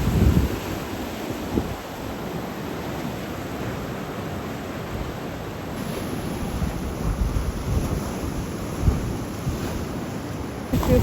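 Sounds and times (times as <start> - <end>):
wind on microphone: 0.0 - 2.0, 5.8 - 11.0
rough ocean surf: 0.0 - 11.0.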